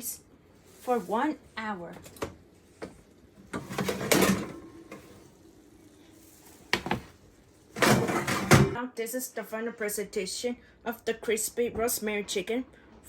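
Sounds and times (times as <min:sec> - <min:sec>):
baking pan scraping and rattling: 0:07.8 - 0:08.8.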